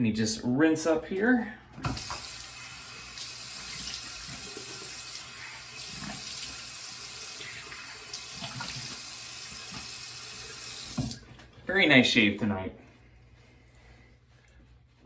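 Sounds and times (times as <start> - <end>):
tap running into a sink: 1.8 - 2.5, 7.7 - 11.2.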